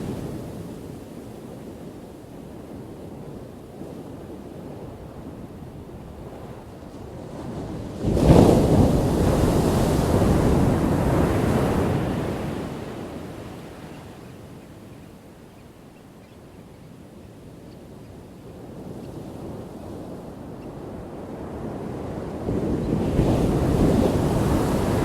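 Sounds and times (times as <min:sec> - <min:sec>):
ocean wave crashing: 0:23.4 - 0:25.0.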